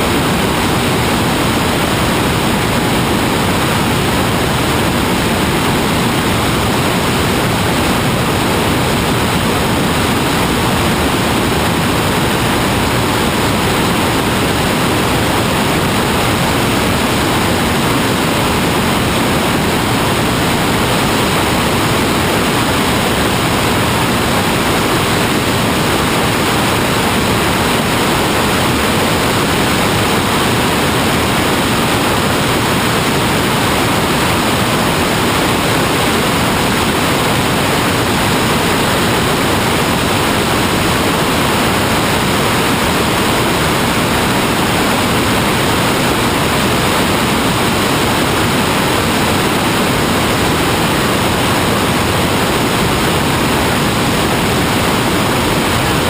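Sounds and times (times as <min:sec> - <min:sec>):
steady rushing noise: 0:00.0 - 0:56.0.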